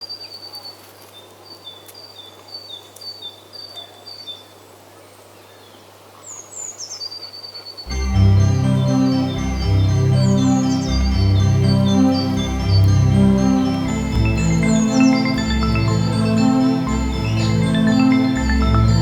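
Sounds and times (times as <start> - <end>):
songbird singing: 5.4 - 19.0
loud keyboard music: 7.9 - 19.0.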